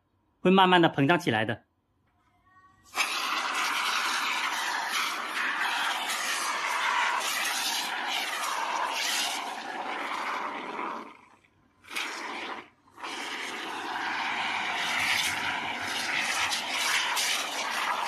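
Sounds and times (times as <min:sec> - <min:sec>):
aerosol can spraying hiss: 0:02.9 - 0:09.6.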